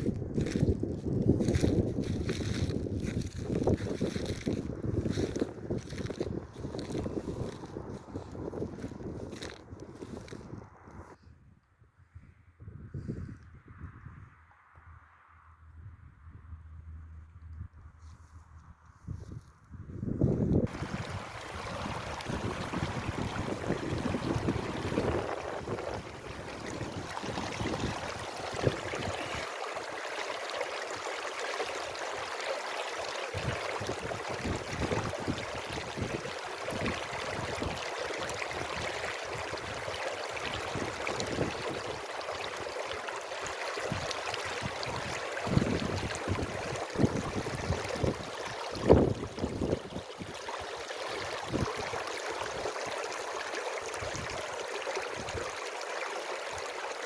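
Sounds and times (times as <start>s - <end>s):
wind buffeting microphone: 0.0s - 14.4s, 18.9s - 29.5s, 33.3s - 42.8s, 43.8s - 50.4s, 51.2s - 52.7s
stream water rushing: 20.6s - 57.0s.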